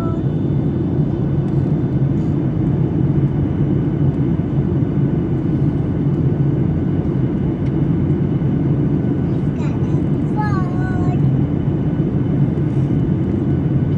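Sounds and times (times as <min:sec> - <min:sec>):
airliner cabin engine rumble: 0:00.0 - 0:13.9.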